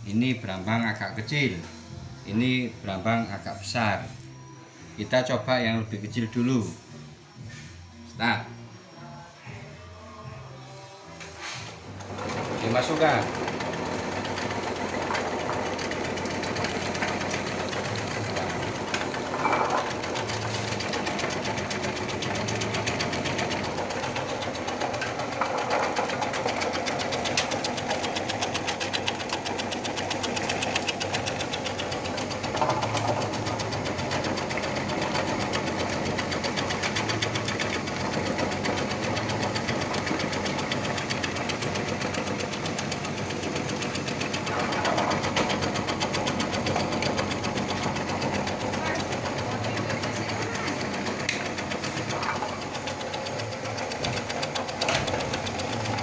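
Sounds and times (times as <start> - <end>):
slicing machine rattling: 11.8 - 56.0.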